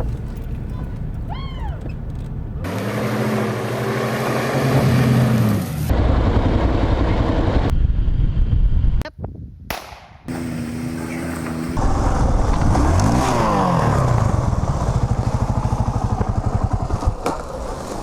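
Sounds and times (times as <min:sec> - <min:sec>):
engine running steadily: 0:00.0 - 0:04.2, 0:05.3 - 0:07.8, 0:10.3 - 0:18.0
engine running with rising pitch: 0:00.0 - 0:09.0, 0:10.3 - 0:18.0
rumbling driving noise: 0:00.0 - 0:09.0, 0:10.3 - 0:18.0.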